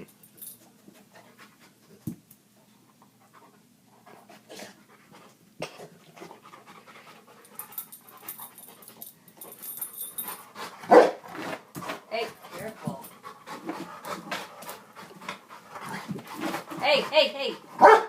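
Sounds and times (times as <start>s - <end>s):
dog panting hard: 3.0s - 9.6s, 10.2s - 18.0s.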